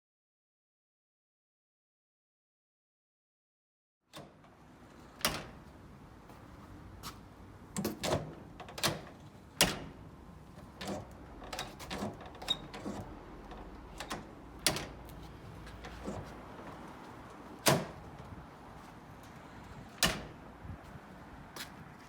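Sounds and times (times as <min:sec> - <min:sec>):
door latch clicking: 0:04.1 - 0:05.6, 0:07.7 - 0:10.1, 0:10.7 - 0:16.8, 0:17.6 - 0:18.3, 0:20.0 - 0:20.4.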